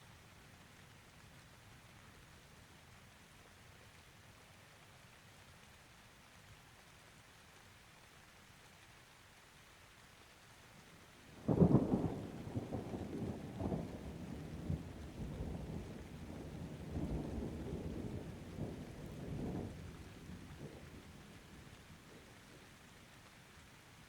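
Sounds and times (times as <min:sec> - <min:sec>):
light rain: 0:00.0 - 0:24.0
thunder crack and rumble: 0:11.4 - 0:22.3.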